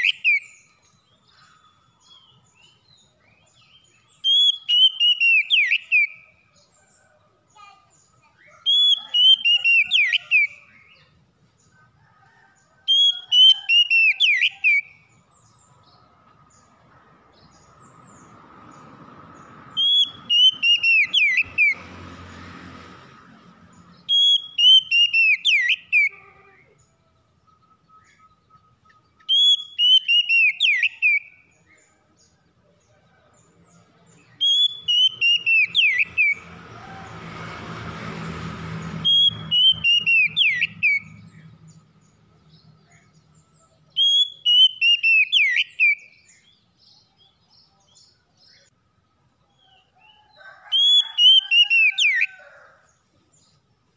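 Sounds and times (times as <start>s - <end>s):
bird singing whistled phrases: 1.6s - 6.3s, 8.5s - 11.0s, 19.8s - 21.8s, 24.1s - 26.2s, 27.6s - 31.4s, 34.4s - 36.4s, 39.1s - 41.1s, 44.0s - 46.2s.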